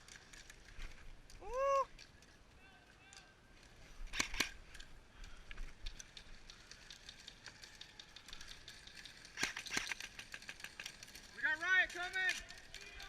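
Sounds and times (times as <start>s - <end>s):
faint irregular clicks: 0.0s - 13.0s
airsoft gun shots: 4.1s - 4.6s, 9.4s - 10.1s.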